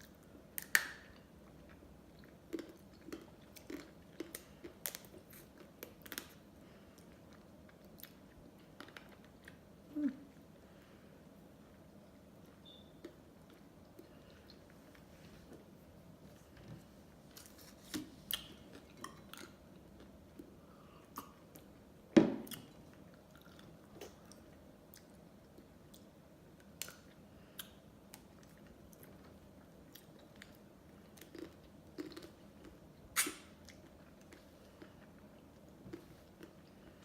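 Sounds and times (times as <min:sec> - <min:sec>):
mouth chewing ice cream: 0:01.4 - 0:10.5, 0:22.5 - 0:37.0.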